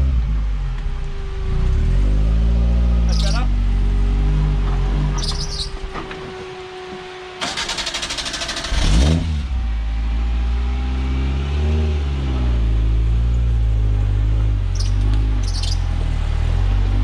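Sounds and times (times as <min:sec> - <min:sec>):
engine running and revving: 0:00.0 - 0:17.0
starter motor cranking: 0:07.4 - 0:09.2.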